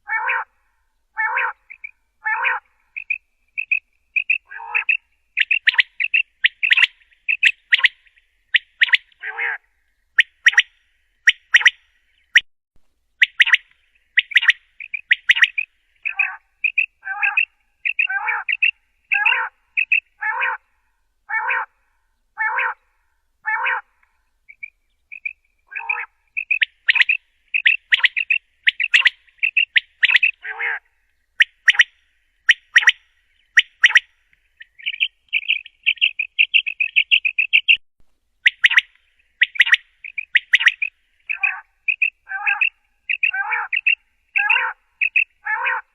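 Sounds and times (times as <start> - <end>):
quail chirping: 0.1 - 0.5, 1.2 - 9.6, 10.2 - 12.4, 13.2 - 20.6, 21.3 - 21.7, 22.4 - 22.8, 23.5 - 23.8, 24.5 - 30.8, 31.4 - 37.8, 38.4 - 45.9
lower harsher quail notes: 10.2 - 12.4.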